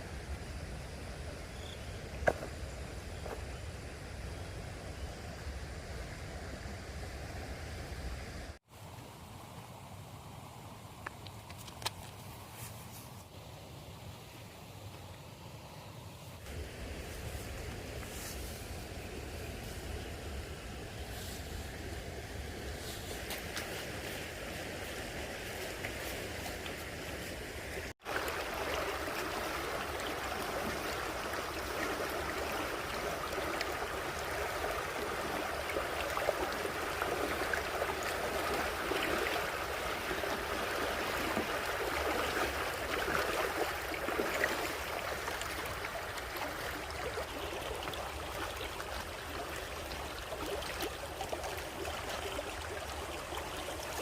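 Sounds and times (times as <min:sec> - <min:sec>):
stream water rushing: 0:16.4 - 0:54.0.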